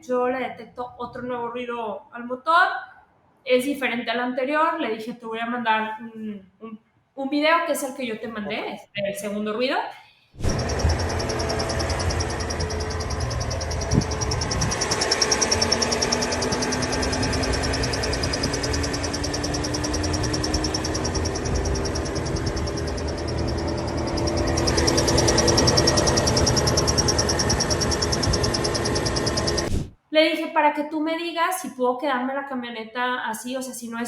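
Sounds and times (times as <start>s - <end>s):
faint rising tone: 10.4s - 29.7s
car engine running: 10.5s - 29.7s
rapid high-pitched chirping: 10.5s - 29.7s.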